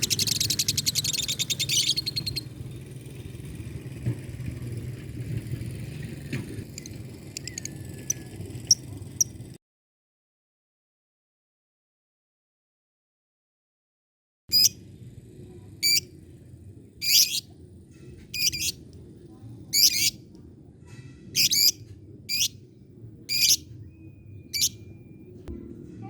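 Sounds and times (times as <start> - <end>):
bird shrill chirping: 0.0 - 2.5, 14.5 - 14.8, 15.8 - 16.0, 17.0 - 17.5, 18.4 - 18.8, 19.8 - 20.2, 21.4 - 22.6, 23.3 - 25.0
steady low hum: 14.5 - 26.0.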